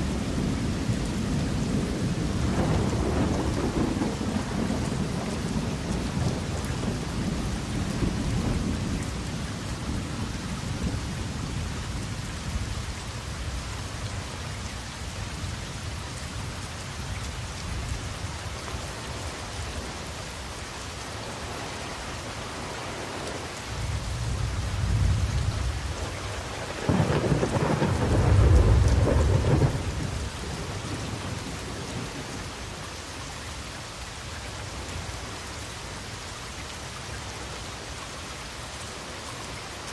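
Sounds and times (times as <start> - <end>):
thunder rumbling: 0.0 - 11.8, 22.4 - 32.6
rain falling: 0.0 - 39.9.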